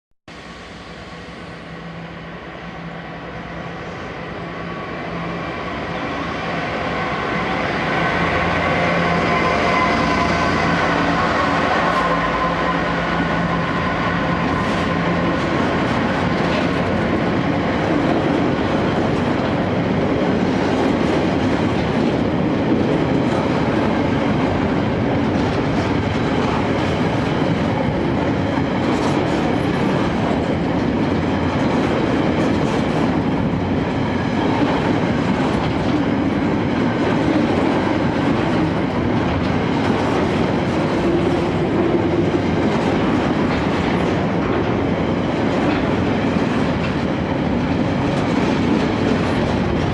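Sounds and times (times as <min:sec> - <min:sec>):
diesel locomotive passing: 0:00.3 - 0:49.9
train wheels clattering on rails: 0:07.0 - 0:49.9.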